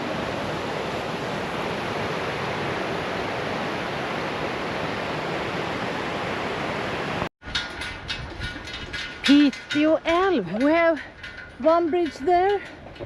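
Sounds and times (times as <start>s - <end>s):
river water rushing: 0.0s - 7.3s.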